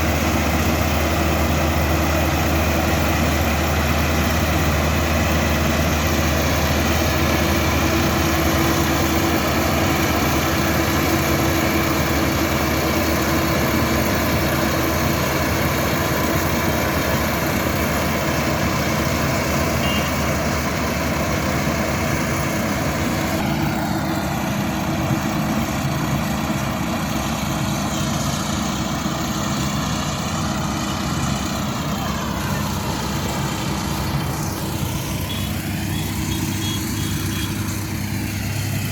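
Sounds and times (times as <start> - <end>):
combine harvester engine running: 0.0 - 38.9
wavering machinery whine: 30.6 - 38.9.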